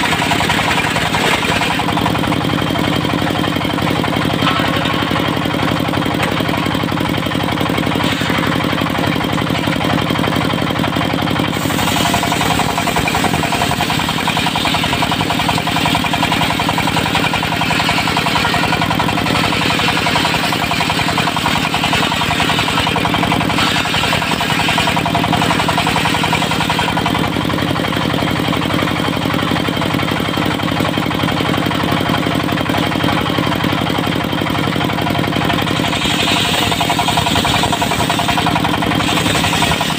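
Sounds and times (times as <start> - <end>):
saw blade rasping through wood: 0.0 - 2.2, 11.5 - 27.3, 35.6 - 39.9
diesel engine running: 0.0 - 39.9.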